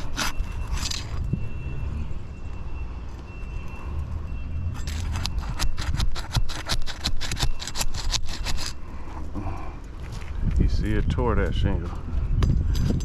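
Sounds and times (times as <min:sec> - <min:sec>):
shingle crackling and tearing: 0:00.0 - 0:01.3, 0:04.8 - 0:08.8.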